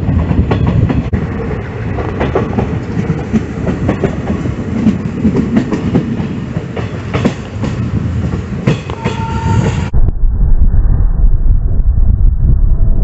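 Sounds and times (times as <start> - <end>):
low heavy train rumble: 0.0 - 13.0
train wheels clattering: 2.0 - 9.8.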